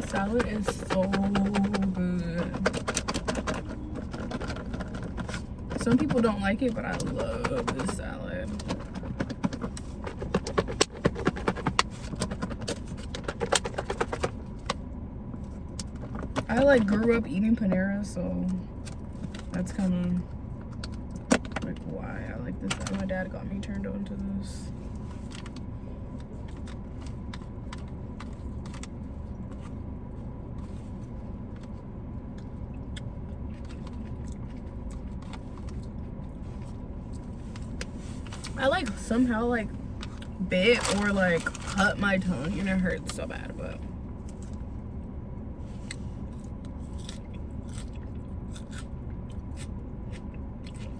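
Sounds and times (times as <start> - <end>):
low rumble: 0.0 - 50.9
steady low hum: 0.0 - 50.9
chewing crisp lettuce: 32.3 - 36.0, 45.8 - 50.9.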